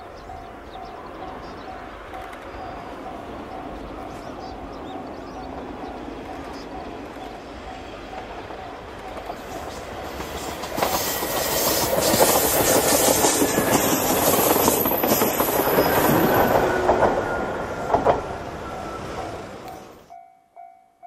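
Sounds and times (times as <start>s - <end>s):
train wheels clattering on rail joints: 4.8s - 19.9s.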